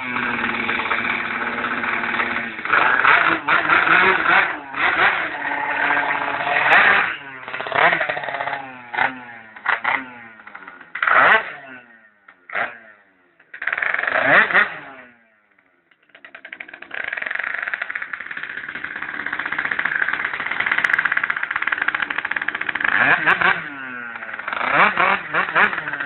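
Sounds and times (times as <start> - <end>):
car engine revving: 0.0 - 13.0, 22.1 - 26.0
engine running with exhaust pulse: 0.0 - 26.0.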